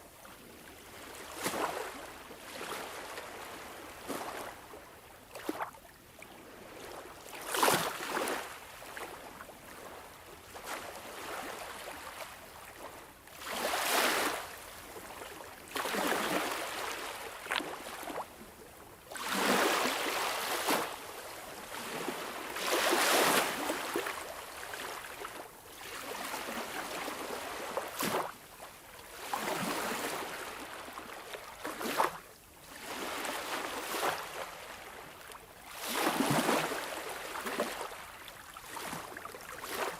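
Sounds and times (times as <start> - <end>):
sea waves washing and splashing: 15.6 - 18.2, 19.1 - 28.4, 29.1 - 35.0, 35.6 - 39.9.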